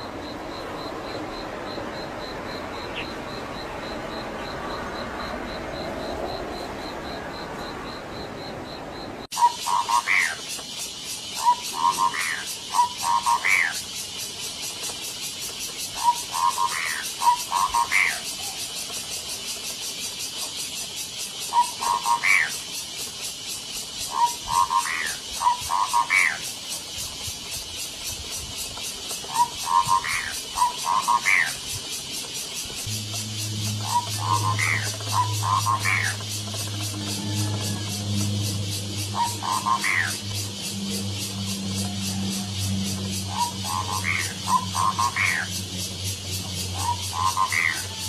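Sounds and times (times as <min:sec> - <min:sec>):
outdoor background hiss: 0:00.0 - 0:37.3, 0:37.9 - 0:48.0
pulsing high chirring: 0:29.4 - 0:48.0
high even chirping pulse: 0:32.8 - 0:36.6
animal call phrase: 0:39.1 - 0:40.2, 0:46.8 - 0:48.0.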